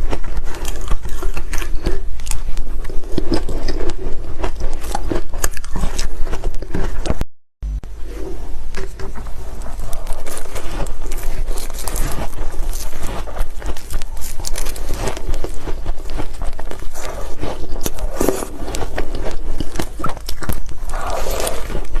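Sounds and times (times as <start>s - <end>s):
ice being chewed: 0.0s - 7.2s, 8.1s - 22.0s.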